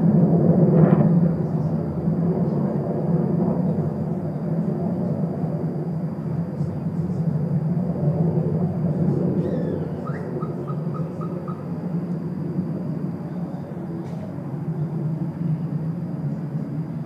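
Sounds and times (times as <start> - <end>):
low rumbling drone: 0.0 - 17.0
evenly spaced chirps: 9.4 - 12.0.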